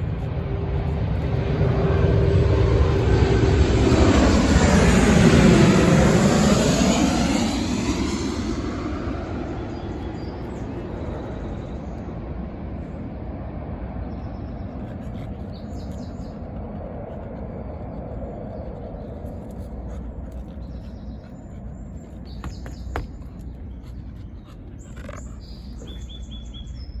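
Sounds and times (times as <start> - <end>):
birds chirping: 14.0 - 27.0.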